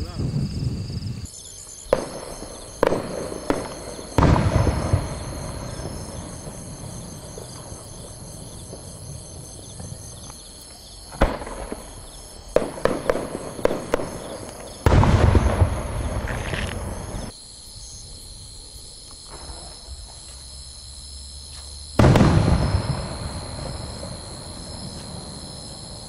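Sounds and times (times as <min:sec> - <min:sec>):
firework shells bursting: 0:01.8 - 0:09.0, 0:11.1 - 0:17.3, 0:22.0 - 0:25.4
small firework pops: 0:01.9 - 0:06.6, 0:09.7 - 0:17.3, 0:21.5 - 0:23.8.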